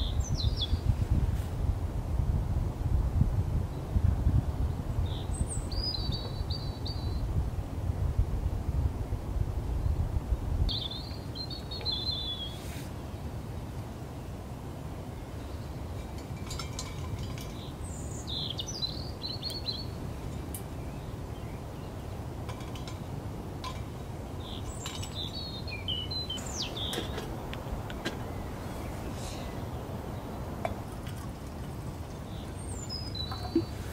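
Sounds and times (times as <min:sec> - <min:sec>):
wind buffeting microphone: 0:00.0 - 0:12.4, 0:15.4 - 0:33.9
songbird warbling: 0:24.4 - 0:30.8, 0:32.2 - 0:33.9.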